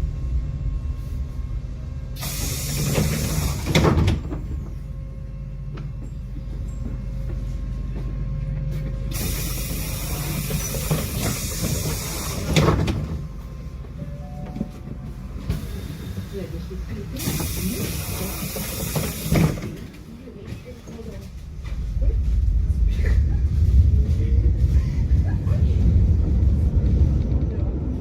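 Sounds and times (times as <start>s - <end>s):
tram low rumble: 0.0s - 28.0s
pneumatic door air hiss: 2.2s - 4.2s, 9.1s - 12.8s, 17.2s - 19.8s.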